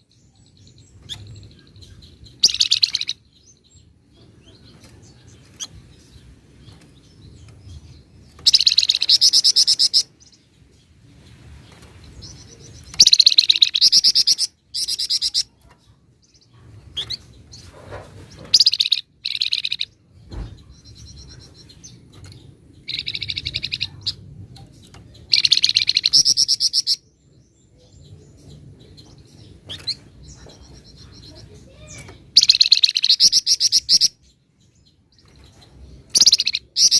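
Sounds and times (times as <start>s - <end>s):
bird chirps: 0.0s - 36.9s
songbird trilling: 1.1s - 3.5s, 8.4s - 10.4s, 12.3s - 15.6s, 18.5s - 20.0s, 20.6s - 24.2s, 25.2s - 28.3s, 29.7s - 34.2s, 36.1s - 36.9s.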